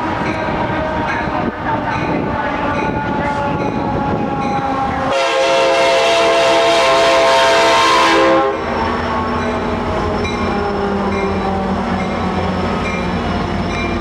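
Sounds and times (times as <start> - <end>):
train rumbling on rails: 0.0 - 14.0
locomotive air horn: 2.6 - 8.7.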